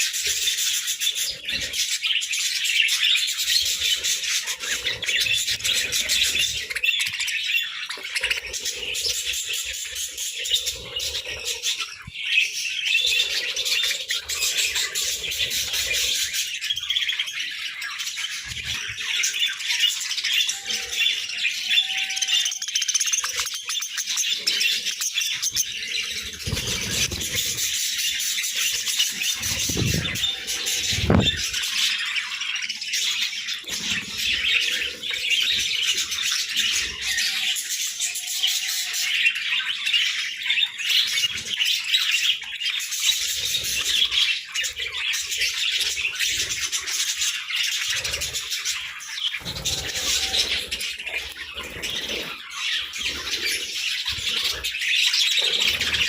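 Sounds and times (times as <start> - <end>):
budgerigars chattering and chirping: 0.0 - 56.0
wing flutters: 26.1 - 31.7, 47.8 - 56.0.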